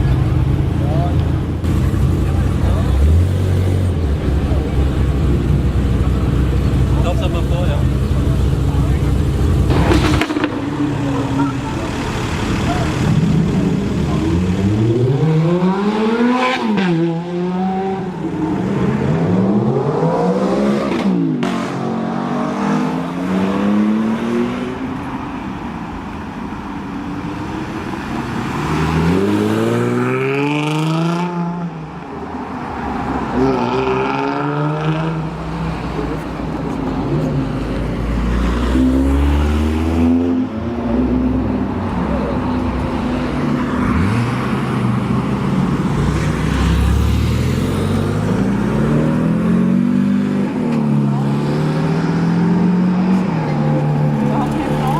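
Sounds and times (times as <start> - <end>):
sports car engine revving: 1.6 - 24.9.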